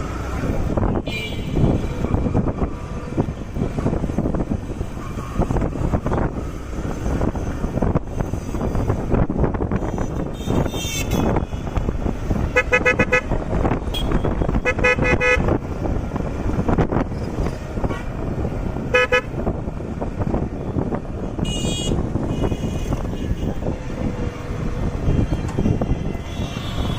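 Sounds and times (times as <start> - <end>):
road and wind rumble: 0.0 - 26.9
vehicle horn honking: 9.8 - 11.7, 12.5 - 15.5, 18.9 - 19.3, 21.4 - 23.6, 25.1 - 26.9.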